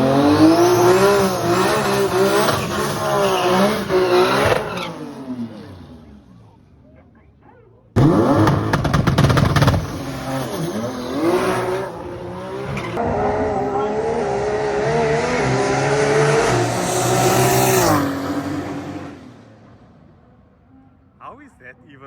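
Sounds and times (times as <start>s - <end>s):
drag car engine at full throttle: 0.0s - 6.8s, 7.9s - 20.4s
rapid engine crackle: 8.0s - 9.9s.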